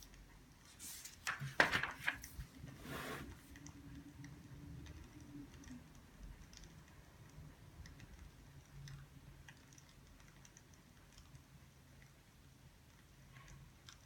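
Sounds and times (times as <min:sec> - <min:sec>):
small clicks and ticks: 0:03.5 - 0:14.0.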